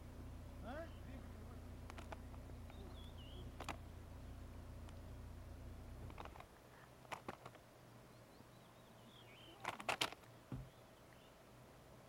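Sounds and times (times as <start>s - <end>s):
sharp clicks: 1.8s - 3.8s, 6.0s - 6.5s, 7.1s - 7.6s, 9.6s - 10.3s
faint wavering bird chirp: 2.3s - 3.6s, 8.0s - 9.7s
dull thump: 10.5s - 10.8s.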